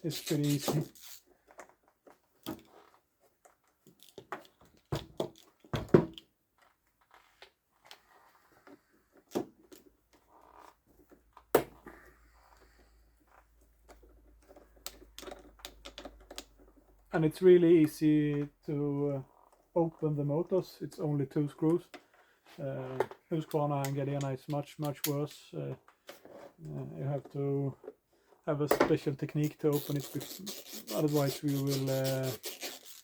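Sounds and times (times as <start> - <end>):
clicks and knocks of parts and tools: 13.3 - 17.1.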